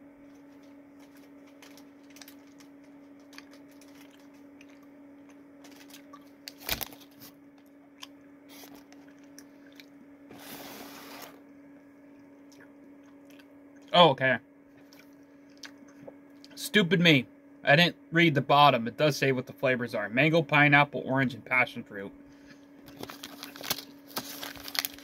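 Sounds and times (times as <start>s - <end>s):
steady low hum: 0.0s - 25.0s
person chewing gummy snacks: 0.3s - 7.0s, 7.6s - 10.0s, 12.2s - 14.0s, 14.8s - 16.6s.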